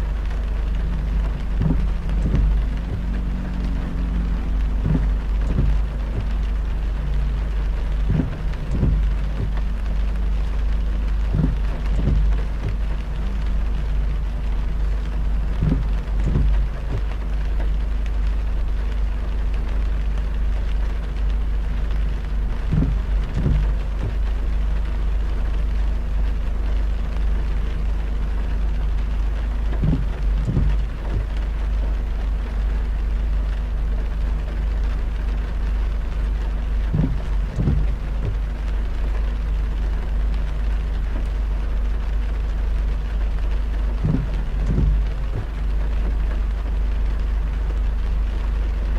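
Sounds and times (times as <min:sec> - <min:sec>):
car driving on wet road: 0:00.0 - 0:48.9
heavy rain: 0:00.0 - 0:48.9
dull thumps: 0:00.8 - 0:10.1, 0:10.9 - 0:14.5, 0:15.4 - 0:17.2, 0:22.6 - 0:24.3, 0:29.6 - 0:31.5, 0:36.9 - 0:38.6, 0:44.0 - 0:45.7.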